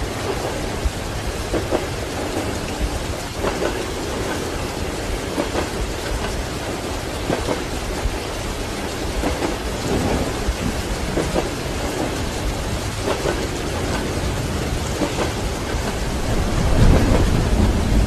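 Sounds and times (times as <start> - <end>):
steady rain: 0.0 - 18.0
thunder rumbling: 0.0 - 18.0.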